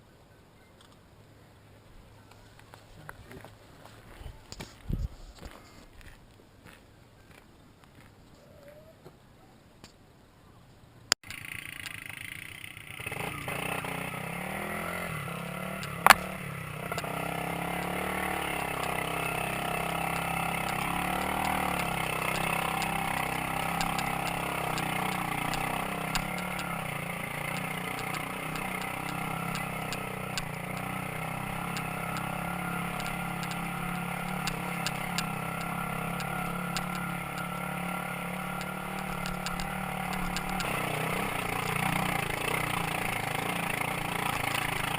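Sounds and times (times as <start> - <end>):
motorcycle engine running: 11.2 - 44.9.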